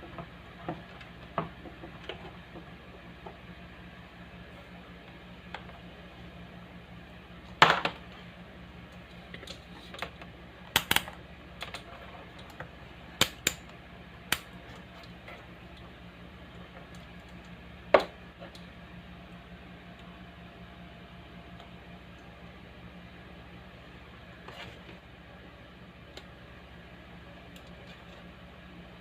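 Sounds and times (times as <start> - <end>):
speaker mains hum: 0.0 - 29.0.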